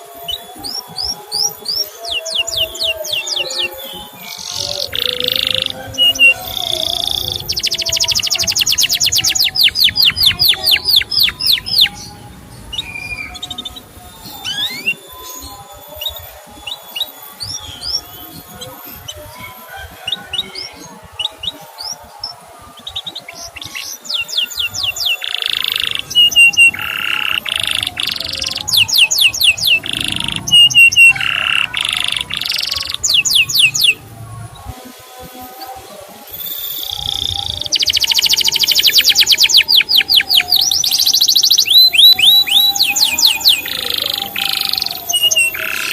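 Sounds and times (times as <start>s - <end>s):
canary singing: 0.0s - 45.9s.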